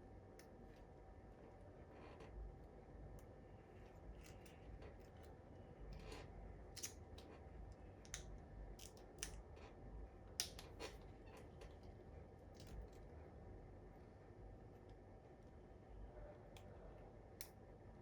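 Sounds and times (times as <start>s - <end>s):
light clicks and taps of laptop parts: 4.2s - 9.7s, 10.4s - 11.9s.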